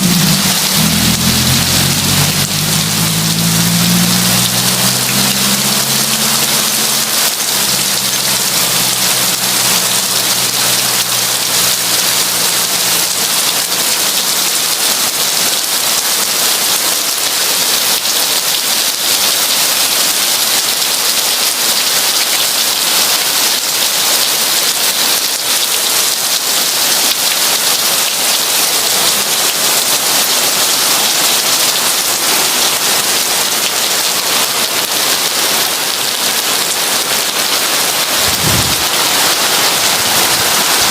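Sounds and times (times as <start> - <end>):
low rumble: 0.0 - 8.6, 38.1 - 40.8
heavy rain falling: 0.0 - 40.9.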